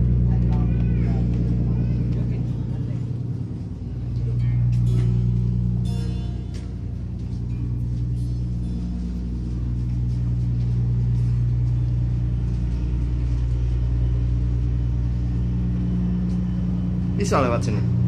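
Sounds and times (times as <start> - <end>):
ship diesel engine humming: 0.0 - 18.0.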